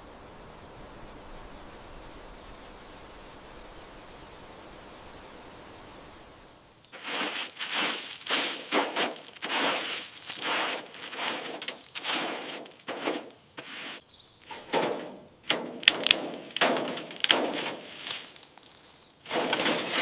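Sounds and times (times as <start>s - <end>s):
rough rubbing strokes: 6.9s - 20.0s.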